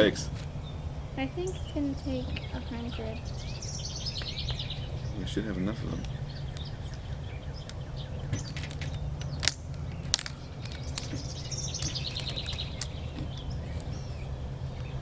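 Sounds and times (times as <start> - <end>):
bird trilling: 0.0 - 15.0
low outdoor rumble: 0.0 - 15.0
rubber bands snapping: 5.9 - 14.0.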